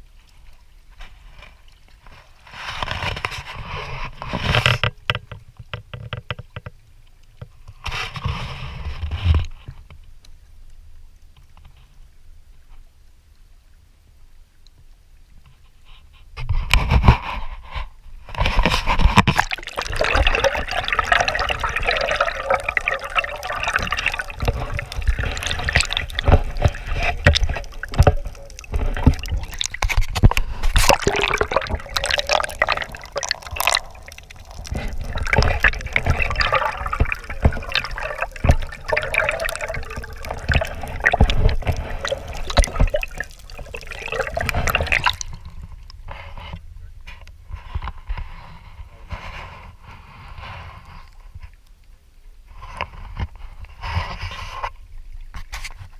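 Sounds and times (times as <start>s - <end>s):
water splashing from paddle: 18.4s - 45.6s.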